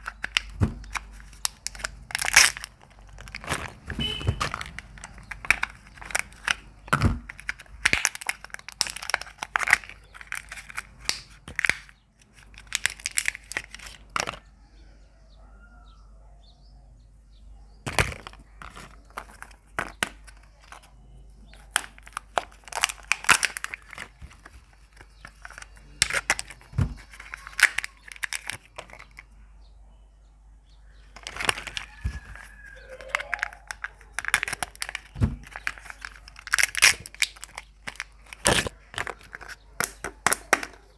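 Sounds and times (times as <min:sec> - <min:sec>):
wrappers crinkling and tearing: 0:00.0 - 0:14.4, 0:21.5 - 0:29.2, 0:31.1 - 0:40.9
eggs cracking open: 0:00.0 - 0:14.5, 0:17.9 - 0:29.4, 0:31.0 - 0:40.9.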